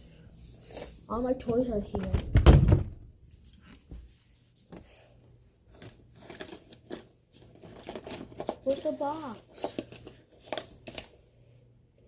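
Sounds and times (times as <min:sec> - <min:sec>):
plastic toys clicking and knocking: 0:05.7 - 0:11.0.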